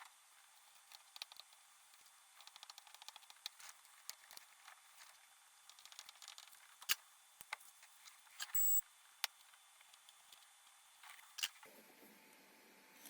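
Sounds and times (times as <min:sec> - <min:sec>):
short high steady tone: 0:08.6 - 0:08.8.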